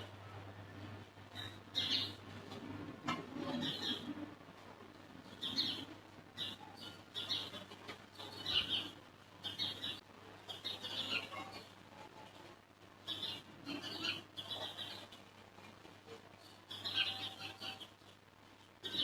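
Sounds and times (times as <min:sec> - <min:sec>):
faint low hum: 0:00.0 - 0:19.0
small birds chirping: 0:00.8 - 0:02.2, 0:03.4 - 0:04.2, 0:05.0 - 0:12.3, 0:13.0 - 0:19.0.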